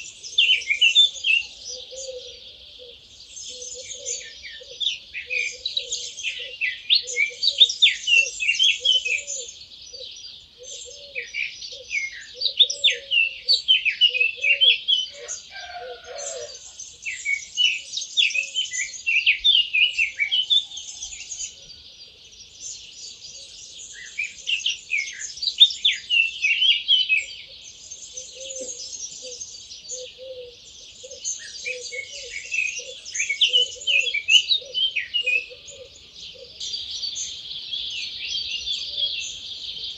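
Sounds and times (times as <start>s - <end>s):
low repeating bird call: 0.0s - 17.8s
songbirds chirping and trilling: 0.0s - 39.9s.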